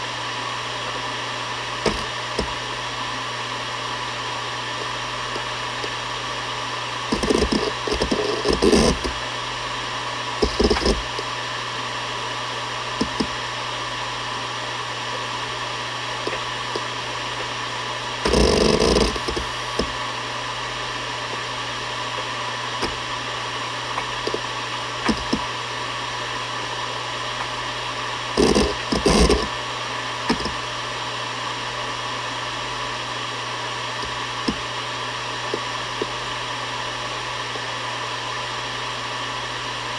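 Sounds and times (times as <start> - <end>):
hard drive humming and whirring: 0.0 - 39.9
hard drive seek chatter: 0.0 - 39.9
hard drive clicks: 0.8 - 3.2, 4.7 - 11.4, 12.7 - 13.9, 15.0 - 26.4, 27.3 - 30.8, 33.9 - 36.3.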